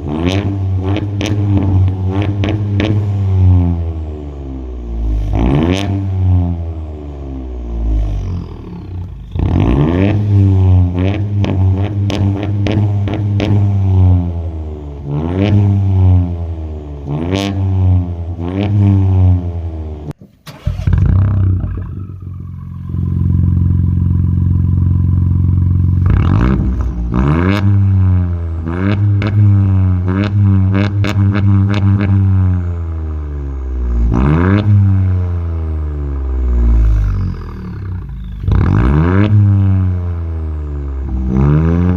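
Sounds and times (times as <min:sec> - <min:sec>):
car engine revving: 0:00.0 - 0:41.9
engine starting up: 0:20.2 - 0:23.0.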